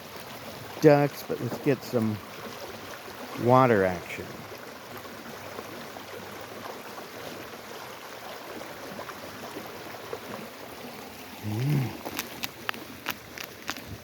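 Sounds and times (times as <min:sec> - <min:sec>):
water running: 0:00.7 - 0:05.5
low voice-like sound: 0:11.4 - 0:12.0.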